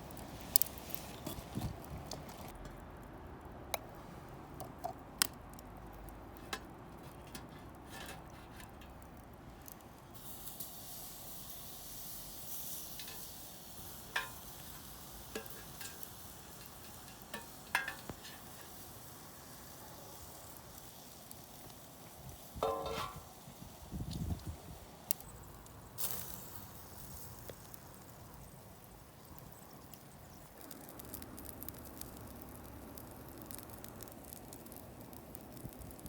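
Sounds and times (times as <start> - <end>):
wood fire pops and crackles: 0.0 - 36.0
food sizzling on a grill: 7.9 - 36.0
high hiss: 10.2 - 20.8.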